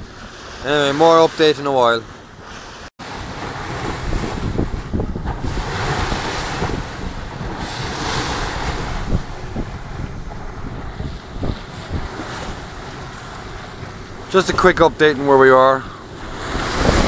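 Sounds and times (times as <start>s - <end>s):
waves slapping boat hull: 0.0s - 17.0s
wind buffeting microphone: 2.3s - 17.0s.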